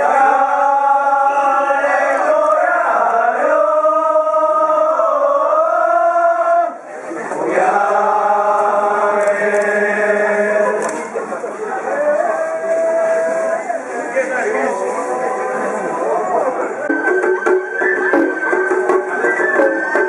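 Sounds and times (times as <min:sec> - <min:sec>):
person chanting a song: 0:00.0 - 0:06.8, 0:07.4 - 0:11.1.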